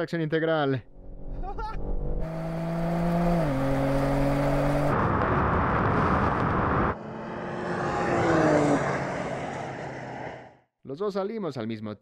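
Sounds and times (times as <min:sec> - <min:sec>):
rushing wind and road noise: 0:02.2 - 0:10.6.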